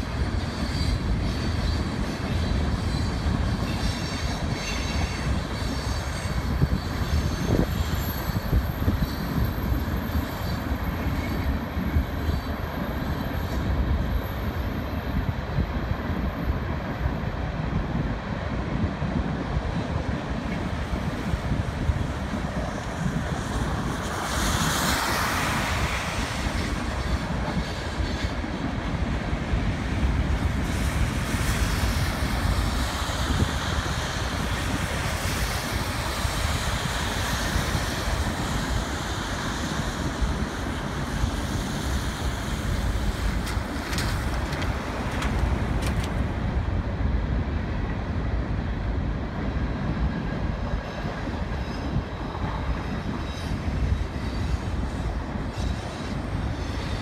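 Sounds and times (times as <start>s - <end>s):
freight train cars rumbling: 0.0s - 57.0s.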